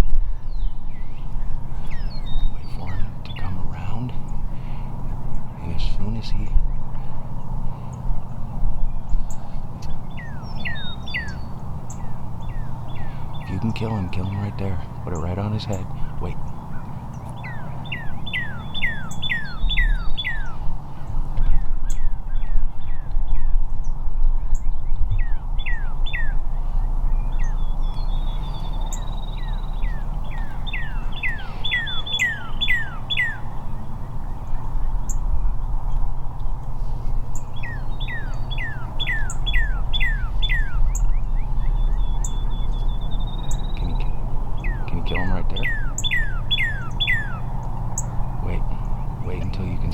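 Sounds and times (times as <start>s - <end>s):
songbird singing: 0.0s - 49.9s
steady low rumble: 0.0s - 49.9s
thin high bird trill: 9.2s - 21.3s, 25.2s - 49.9s.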